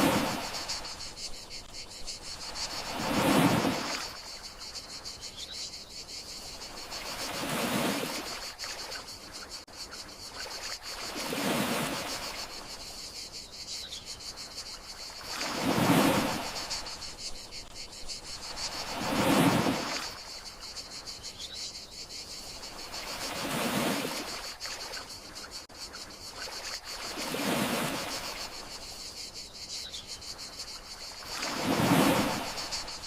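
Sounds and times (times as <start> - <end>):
gentle sea waves washing: 0.0 - 4.9, 6.4 - 9.6, 10.3 - 13.0, 14.5 - 20.7, 22.4 - 25.4, 26.3 - 28.9, 30.7 - 33.0
crickets chirring: 0.0 - 33.0.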